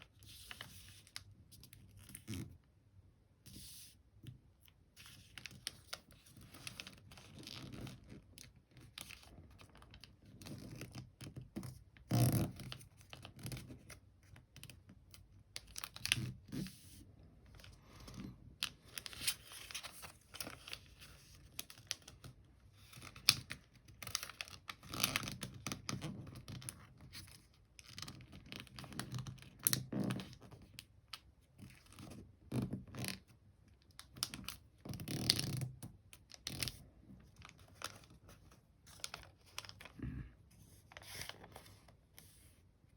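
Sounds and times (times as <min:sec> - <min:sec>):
paper being folded: 0:00.0 - 0:02.4, 0:15.5 - 0:30.4, 0:36.2 - 0:42.5.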